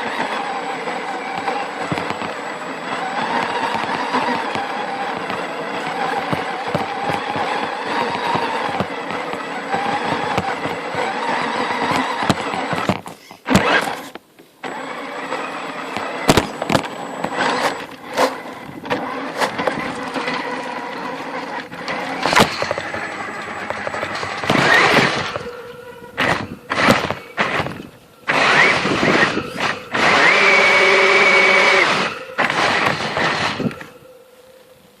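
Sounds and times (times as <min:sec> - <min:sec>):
electric toy truck motor whining: 0:00.0 - 0:34.6
truck bumping knocks: 0:21.6 - 0:25.6.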